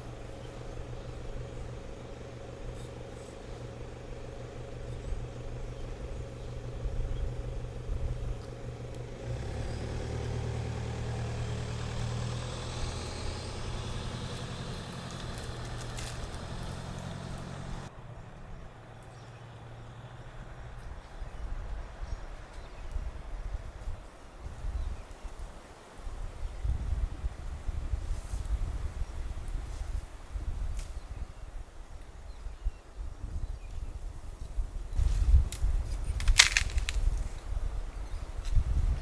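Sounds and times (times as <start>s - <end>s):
car engine humming: 0.0s - 18.2s.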